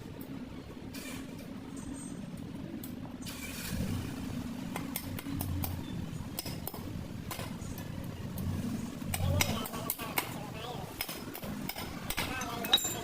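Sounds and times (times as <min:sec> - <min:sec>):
sharp metallic clinks: 0:12.2 - 0:13.0.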